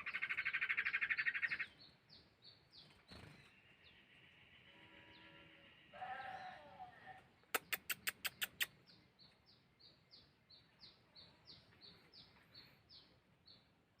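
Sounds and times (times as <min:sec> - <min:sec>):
sharp bird clicks: 0:07.4 - 0:09.0.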